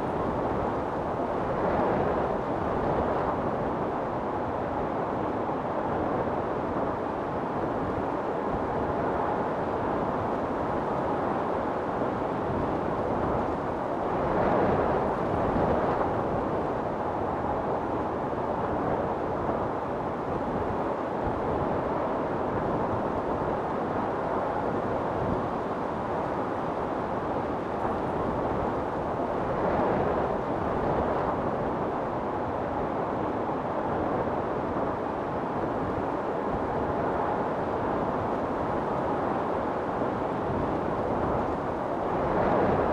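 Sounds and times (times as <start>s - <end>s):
storm wind blowing: 12.3s - 42.9s.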